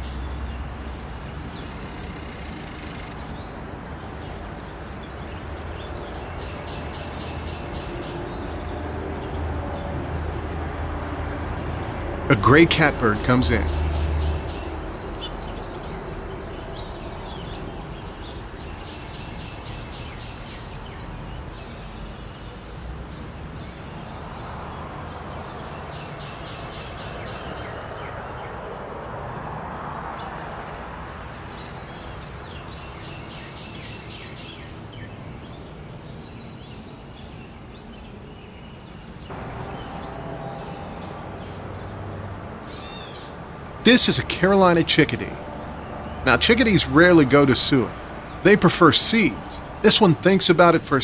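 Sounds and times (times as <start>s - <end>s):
high-pitched insect drone: 39.3s - 42.9s
distant bird trills: 39.3s - 51.0s
background hiss: 43.7s - 51.0s.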